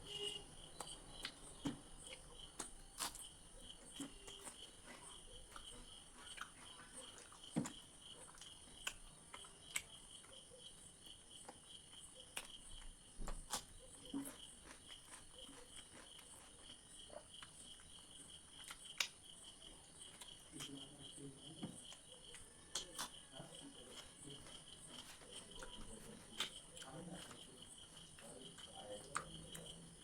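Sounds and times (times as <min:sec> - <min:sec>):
crickets chirping: 0:00.0 - 0:30.0
person chewing food: 0:00.1 - 0:30.0
mouth clicks and smacks: 0:00.6 - 0:10.7, 0:17.3 - 0:19.4, 0:20.0 - 0:30.0.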